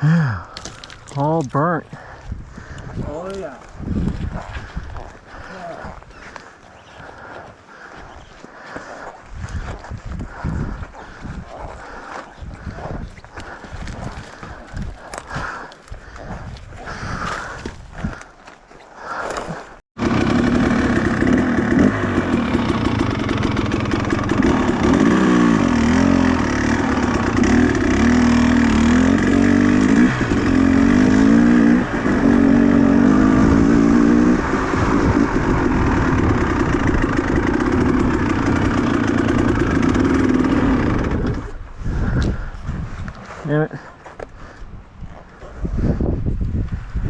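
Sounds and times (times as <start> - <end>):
small two-stroke engine revving: 20.0 - 41.6.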